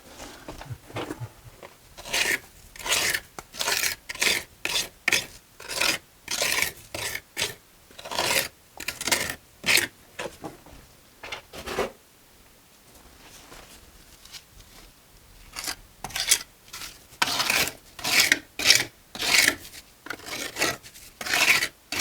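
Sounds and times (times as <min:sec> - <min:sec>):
hand tool scraping mortar and brick: 0:00.0 - 0:09.9, 0:15.6 - 0:22.0.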